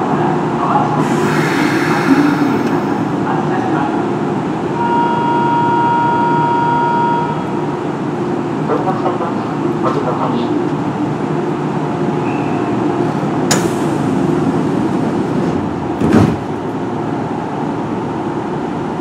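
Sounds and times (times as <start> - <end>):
air hissing: 1.0 - 3.2
train humming: 1.0 - 3.7.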